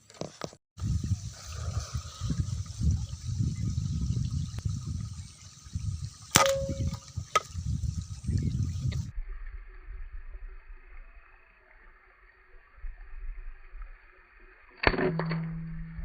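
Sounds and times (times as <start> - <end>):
air rifle shot: 6.3 - 7.0.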